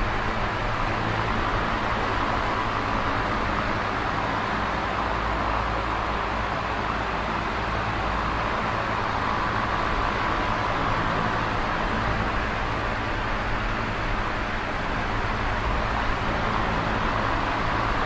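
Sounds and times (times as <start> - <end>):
electric fan air rush: 0.0 - 18.0.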